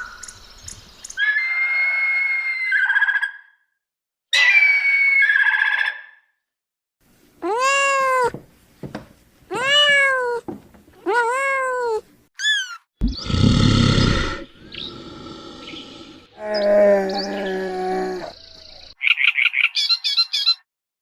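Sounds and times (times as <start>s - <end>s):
cat meowing: 7.4s - 8.4s, 9.5s - 12.8s
short falling squeak: 12.4s - 12.9s.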